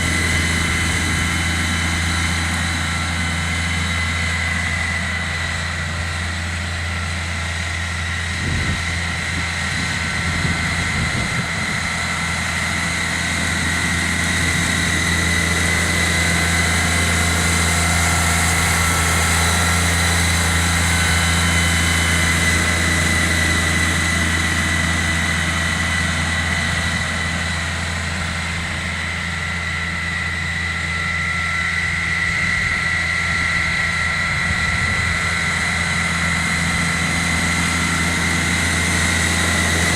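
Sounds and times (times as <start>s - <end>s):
steady high whine: 0.0s - 39.9s
tractor engine running: 0.0s - 39.9s.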